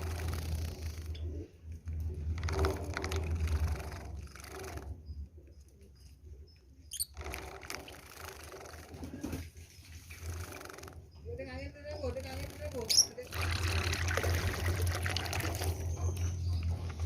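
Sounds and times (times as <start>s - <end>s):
birds fluttering and splashing: 12.2s - 17.0s.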